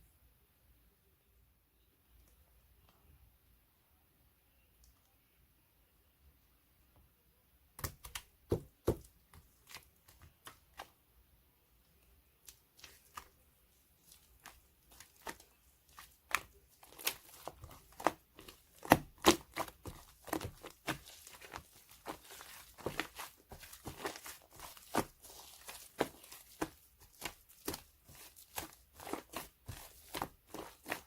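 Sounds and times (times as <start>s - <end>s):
foam squished by hand crackling: 14.0s - 31.0s.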